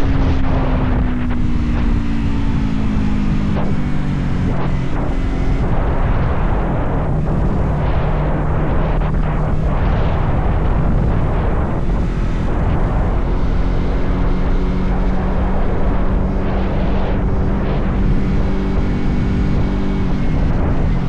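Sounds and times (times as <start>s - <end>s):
motorcycle engine cruising: 0.0s - 21.0s
wind rushing over microphone: 0.0s - 21.0s.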